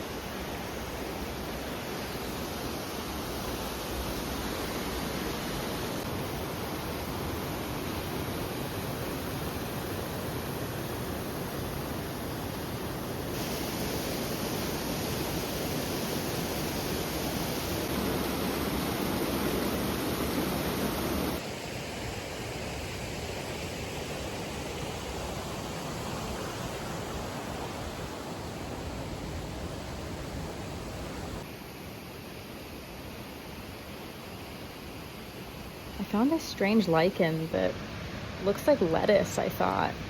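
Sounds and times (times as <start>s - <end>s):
waterfall rushing: 0.2s - 21.4s.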